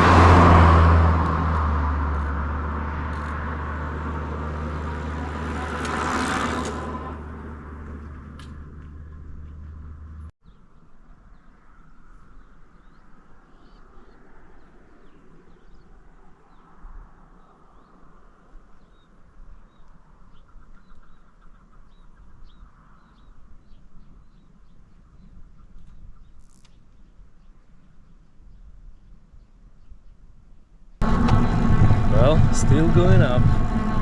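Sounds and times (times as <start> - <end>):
loud low rumble: 0.0 - 5.9, 31.0 - 34.0
wind rumble: 0.0 - 10.3, 31.0 - 34.0.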